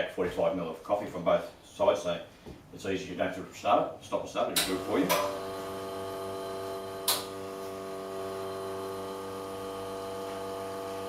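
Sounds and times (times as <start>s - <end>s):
espresso machine pump humming: 4.8s - 11.0s.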